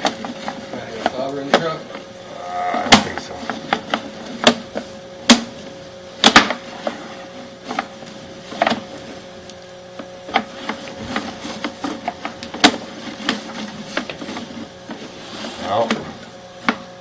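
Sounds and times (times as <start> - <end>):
faint steady hum: 1.8 - 5.8.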